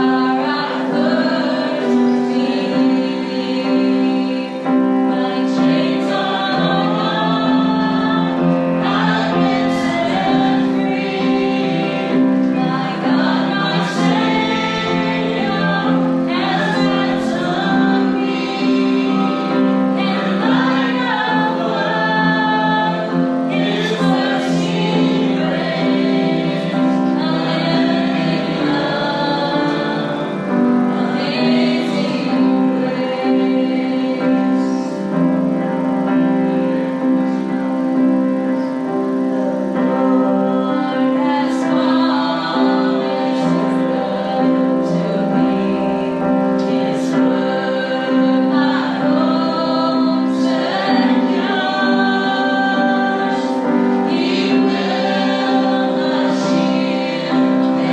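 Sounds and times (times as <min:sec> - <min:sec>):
congregation singing: 0:00.0 - 0:57.9
piano accompaniment: 0:00.0 - 0:57.9.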